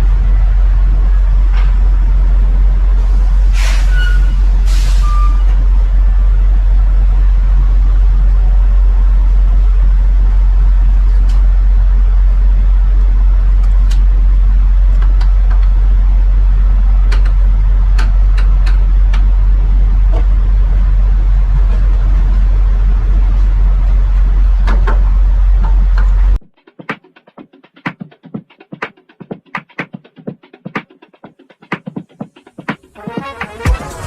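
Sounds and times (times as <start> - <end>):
truck driving drone in cab: 0.0 - 26.4.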